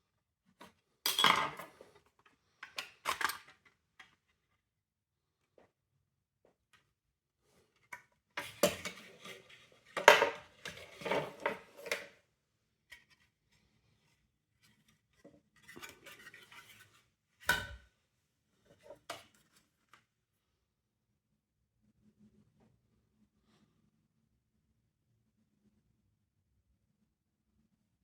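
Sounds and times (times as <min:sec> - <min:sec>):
plastic parts clattering: 0:02.6 - 0:03.7.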